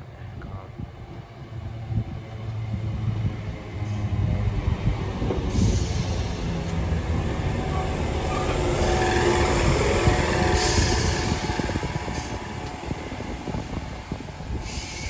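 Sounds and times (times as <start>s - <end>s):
electric train arriving: 1.7s - 15.0s
train hiss: 5.4s - 7.0s, 8.7s - 15.0s.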